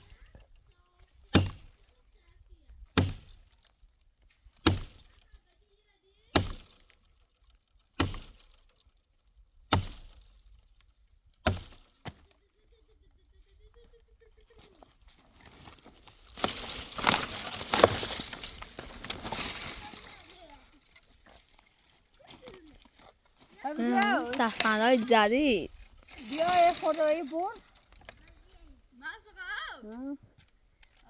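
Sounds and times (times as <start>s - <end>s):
axe chopping firewood: 1.3s - 1.9s, 3.0s - 3.6s, 4.5s - 5.2s, 6.3s - 7.0s, 8.0s - 8.6s, 9.7s - 10.2s, 11.4s - 12.4s, 16.3s - 19.8s
dry branches snapping: 14.8s - 28.6s.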